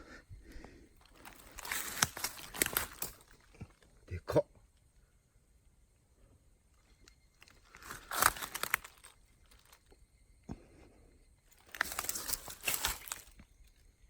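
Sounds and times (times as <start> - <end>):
dry plants crunching and rustling: 1.0 - 4.0, 7.2 - 9.9, 11.6 - 13.9.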